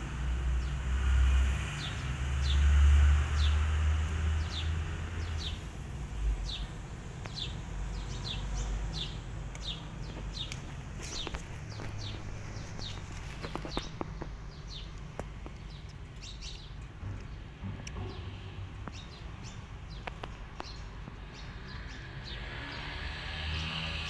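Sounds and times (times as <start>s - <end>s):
small birds chirping: 0.0s - 24.0s
sharp clicks: 9.5s - 18.0s, 19.9s - 20.8s.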